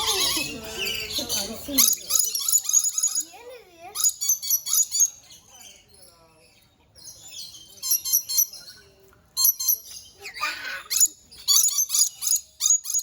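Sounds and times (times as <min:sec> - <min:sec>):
parrots chirping: 0:00.0 - 0:06.0, 0:07.1 - 0:08.8, 0:09.4 - 0:13.0
parrot screeching: 0:10.2 - 0:13.0.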